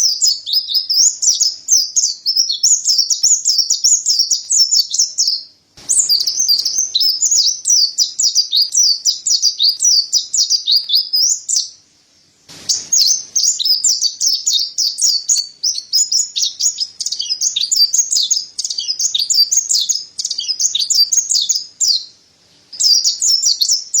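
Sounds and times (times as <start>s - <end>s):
bird twittering song: 0.0s - 24.0s.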